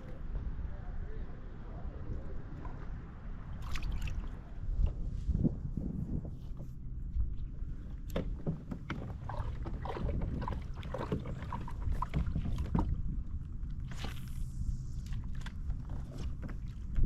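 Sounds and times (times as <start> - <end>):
low rumble of water: 0.0 - 17.0
wind on microphone: 0.0 - 17.0.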